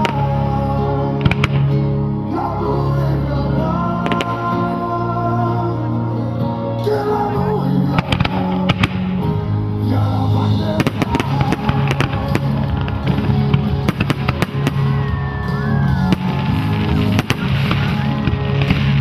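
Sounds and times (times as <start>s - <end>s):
loud show music: 0.0s - 19.0s
fireworks bursting and crackling: 1.1s - 1.7s, 8.0s - 9.4s, 10.5s - 19.0s
whistling fireworks: 10.8s - 19.0s.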